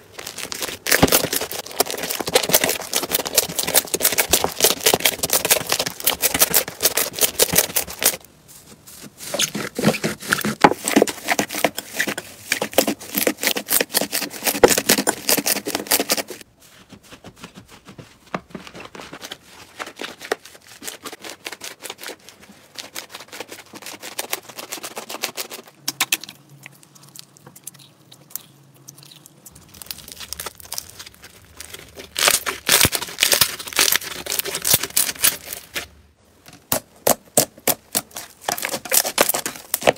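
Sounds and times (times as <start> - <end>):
slime crackling and popping: 0.0 - 8.2, 25.9 - 35.7.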